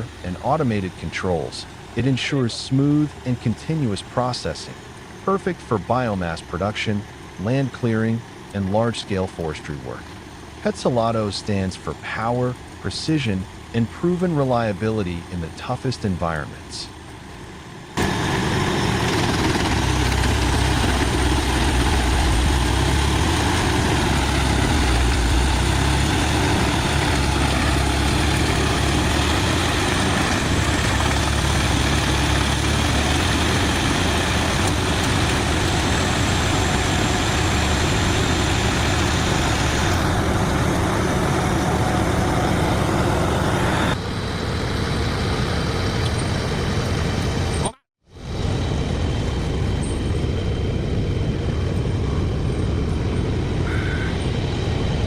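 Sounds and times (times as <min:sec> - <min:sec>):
deep engine drone: 0:00.0 - 0:55.0
wood chipper grinding: 0:18.0 - 0:43.2.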